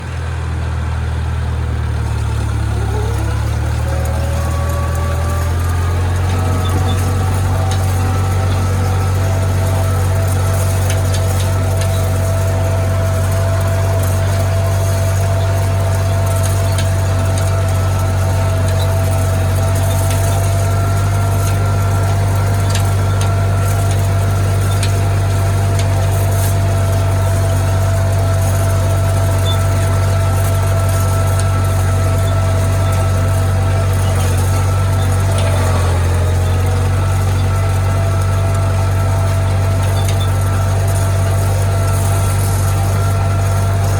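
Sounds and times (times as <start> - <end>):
engine whine: 0.0 - 43.9
tractor engine drone: 0.0 - 43.9.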